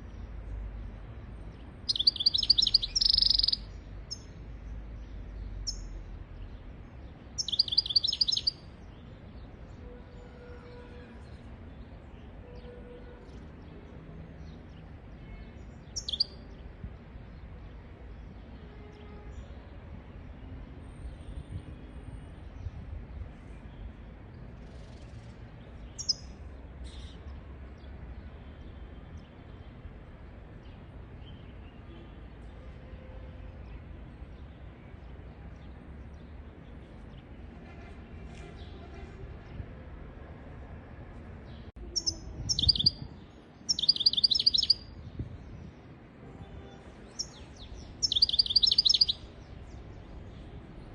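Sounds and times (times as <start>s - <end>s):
bird chirps: 1.9s - 4.4s, 5.0s - 6.0s, 7.4s - 9.1s, 15.3s - 16.6s, 25.8s - 27.3s, 41.5s - 45.2s, 47.0s - 50.4s.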